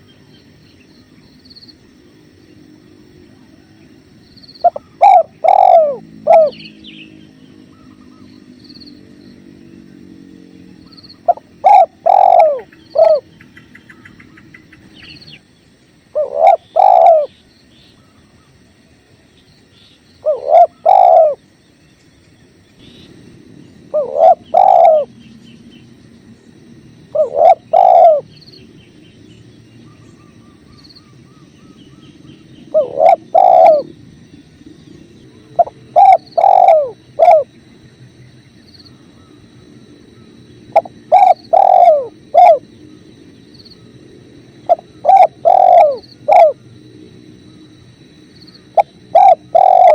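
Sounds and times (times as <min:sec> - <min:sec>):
small birds chirping: 0:03.8 - 0:18.6, 0:19.3 - 0:37.5, 0:38.1 - 0:46.7, 0:47.3 - 0:49.9
dove cooing: 0:04.6 - 0:08.3, 0:10.8 - 0:15.2, 0:16.1 - 0:17.4, 0:20.2 - 0:21.4, 0:23.8 - 0:25.2, 0:27.0 - 0:28.4, 0:29.8 - 0:34.0, 0:35.3 - 0:37.6, 0:40.2 - 0:42.7, 0:44.6 - 0:46.6, 0:48.6 - 0:49.9.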